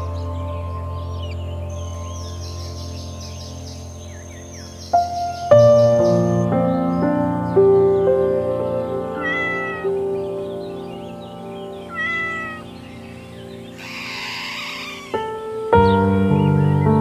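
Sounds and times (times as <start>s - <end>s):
soft background music: 0.0s - 17.0s
cat meowing: 9.1s - 10.0s, 11.9s - 12.7s, 13.8s - 15.2s.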